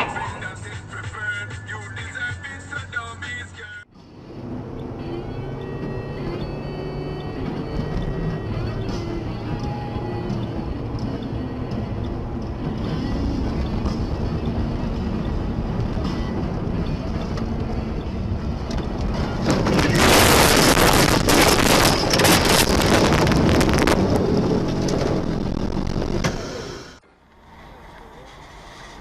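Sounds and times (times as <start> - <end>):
vehicle road noise: 0.0 - 29.0
wind noise: 12.8 - 26.3.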